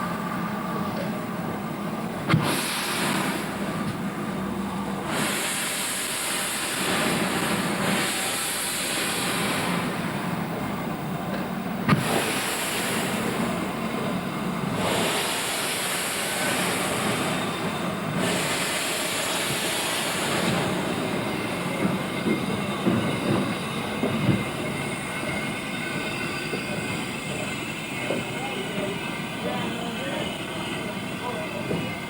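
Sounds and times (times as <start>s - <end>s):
train rumble: 0.0s - 32.0s
steam hissing bursts: 2.2s - 10.4s, 11.9s - 32.0s
wheels clanking on rails: 16.4s - 32.0s.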